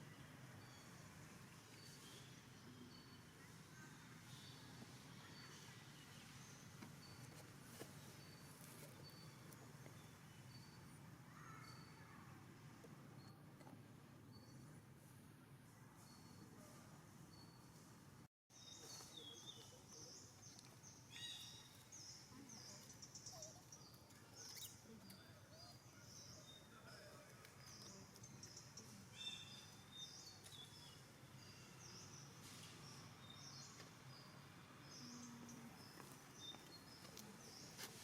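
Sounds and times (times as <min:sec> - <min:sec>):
faint bird chirping: 0:18.5 - 0:38.0.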